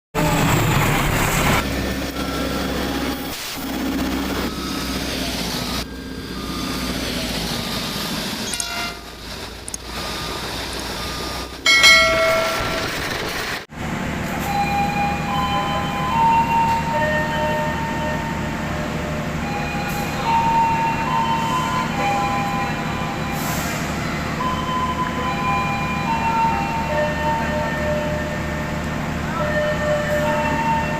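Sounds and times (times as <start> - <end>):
rail and locomotive noise: 0.1 - 30.9
train rumble: 0.1 - 30.9
train horn blowing: 8.4 - 9.1.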